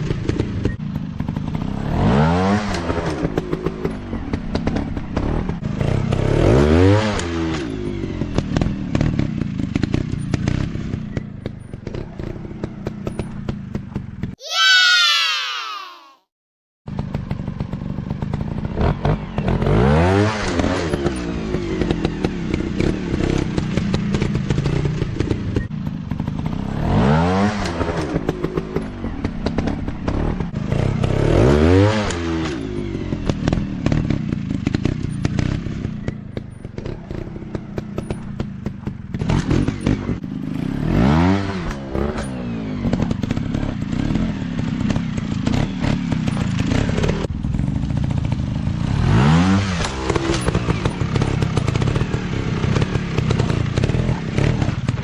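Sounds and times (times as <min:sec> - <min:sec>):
dirt bike engines revving: 0:18.0 - 0:55.0.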